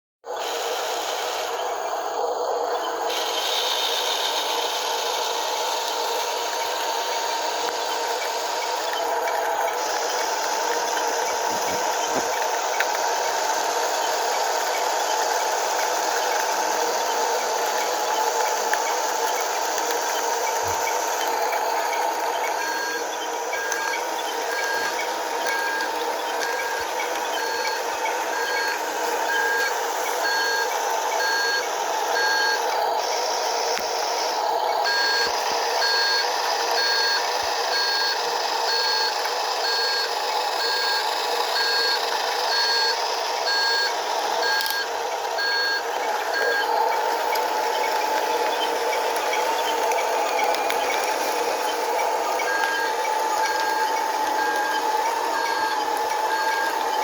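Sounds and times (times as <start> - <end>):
toy reversing beeper: 0.3 - 57.0
mid-pitched hum: 0.4 - 37.5.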